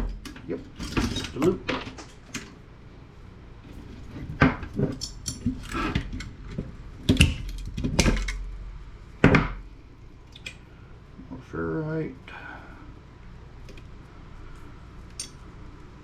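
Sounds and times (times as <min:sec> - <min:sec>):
metal parts clinking and clattering: 0:00.1 - 0:02.5, 0:15.1 - 0:15.4.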